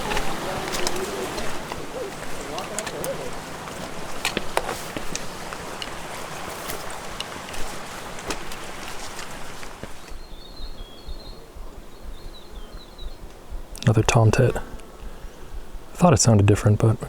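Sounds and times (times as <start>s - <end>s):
rustling and crunching: 0.0s - 10.3s
faint high bird chirping: 10.0s - 15.8s.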